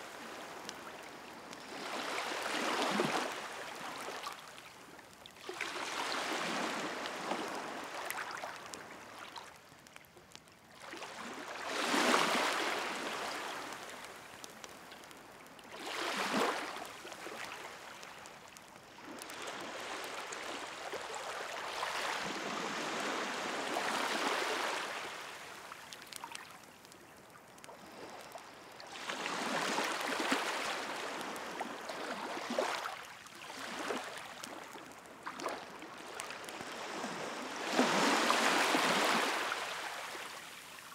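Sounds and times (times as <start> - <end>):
sea waves washing ashore: 0.0 - 9.6, 10.8 - 27.0, 27.8 - 40.9
wood fire crackling: 8.4 - 11.0, 13.1 - 15.8, 16.6 - 19.4, 25.9 - 28.8.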